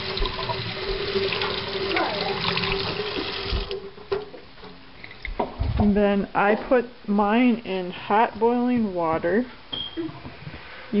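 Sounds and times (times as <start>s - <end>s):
tap running water: 0.0s - 5.5s
faint hum in pipes: 0.0s - 11.0s.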